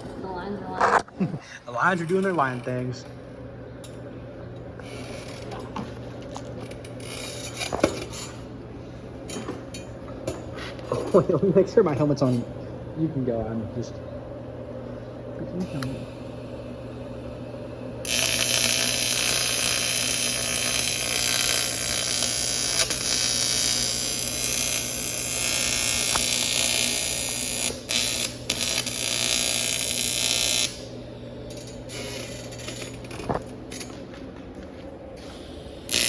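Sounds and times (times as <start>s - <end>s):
steady low hum: 0.0s - 36.0s
welding arc hissing: 15.7s - 33.5s, 35.2s - 36.0s.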